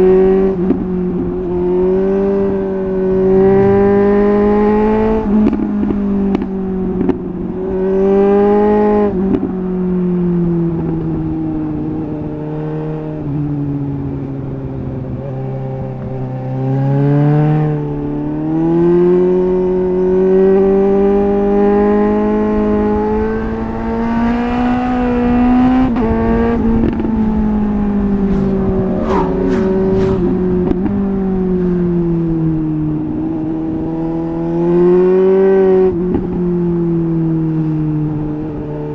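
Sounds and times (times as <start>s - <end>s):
motorcycle engine revving: 26.6s - 30.8s.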